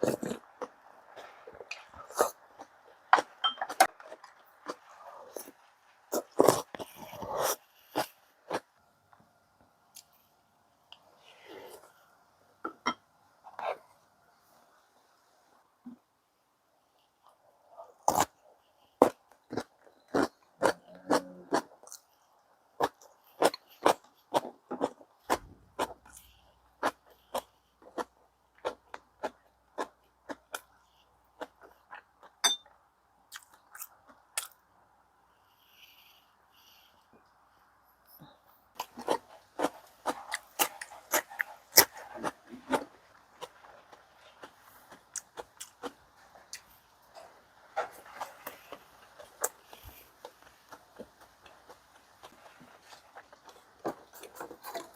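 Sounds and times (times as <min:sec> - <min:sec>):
person chewing with wet mouth smacks: 0:38.8 - 0:54.9.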